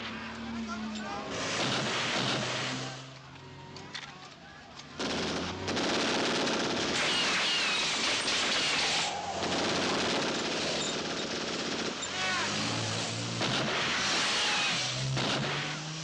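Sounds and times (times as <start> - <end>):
machine-gun fire: 1.5 - 2.8, 5.0 - 15.7.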